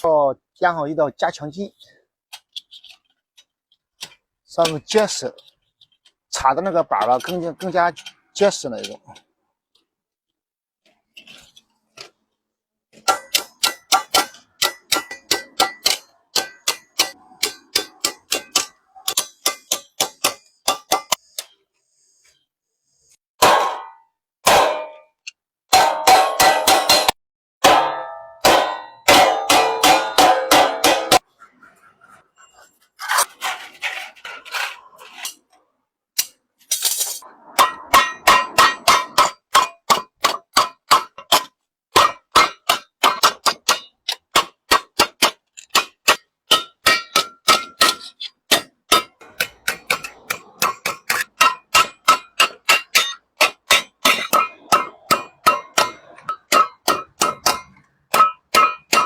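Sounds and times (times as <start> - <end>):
hammer striking sheet metal: 13.0 - 21.5, 23.4 - 25.0, 25.7 - 31.3, 36.2 - 59.0.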